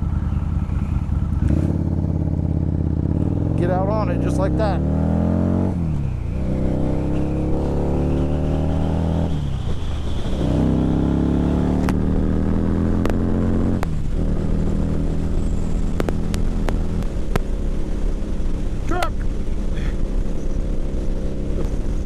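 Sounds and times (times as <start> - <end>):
motorcycle engine accelerating: 0.0 - 22.0
wind noise: 5.0 - 22.0.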